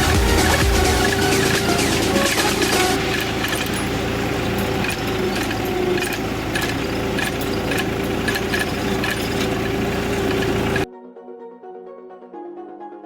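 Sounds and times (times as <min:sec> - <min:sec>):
background music: 0:00.0 - 0:03.6, 0:10.9 - 0:13.0
knocks and rattles: 0:00.0 - 0:10.9
tractor diesel engine running: 0:00.0 - 0:10.9.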